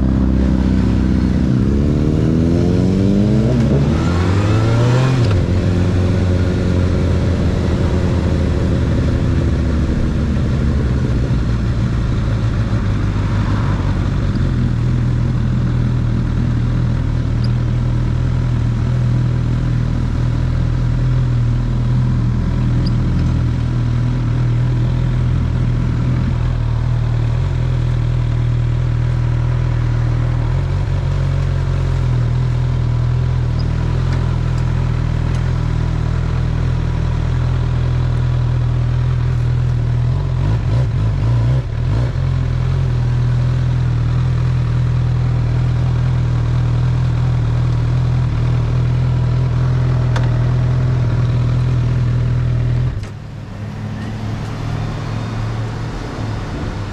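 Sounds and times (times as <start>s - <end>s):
motorcycle engine idling: 5.4s - 40.4s.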